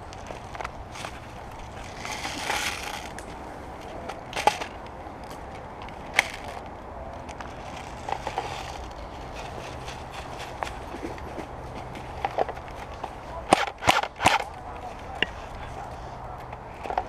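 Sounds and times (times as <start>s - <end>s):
rustling and crunching: 0.0s - 17.0s
sharp cracks: 13.3s - 15.3s.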